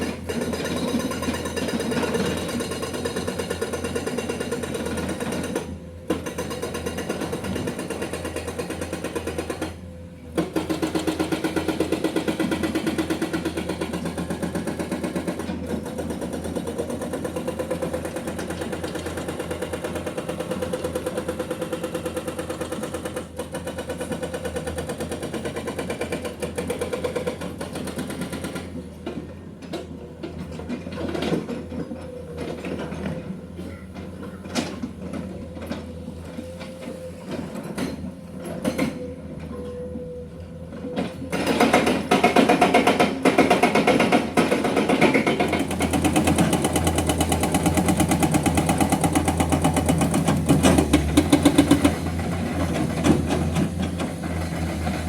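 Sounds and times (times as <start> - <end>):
hydraulic breaker hammering rock: 0.0 - 29.2, 41.1 - 55.0
diesel engine running: 45.6 - 55.0.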